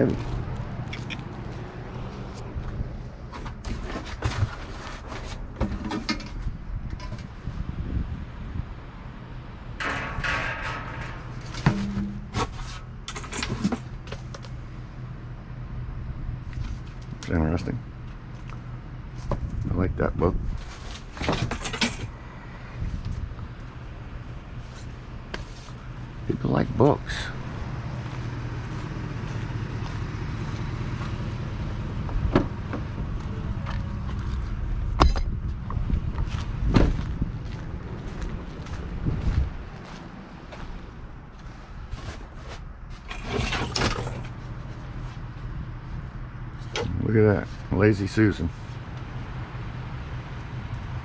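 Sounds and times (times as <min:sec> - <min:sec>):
rustling in a dumpster: 0:00.0 - 0:07.6, 0:09.8 - 0:14.8, 0:20.4 - 0:26.3, 0:36.0 - 0:47.7
low mechanical hum: 0:00.0 - 0:51.0
smaller knocks and clatters: 0:09.8 - 0:14.3.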